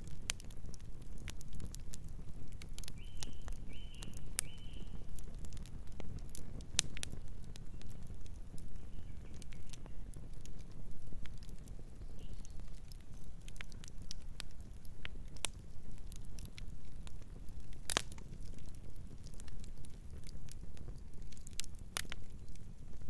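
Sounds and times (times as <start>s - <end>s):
wood fire crackling and popping: 0.0s - 23.0s
distant bird calls: 3.0s - 5.0s.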